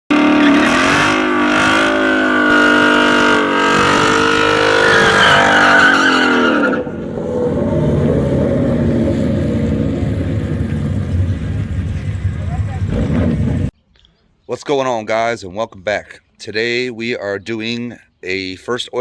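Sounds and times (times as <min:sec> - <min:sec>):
car engine at high revs: 0:00.1 - 0:13.7
low engine rumble: 0:00.1 - 0:13.7.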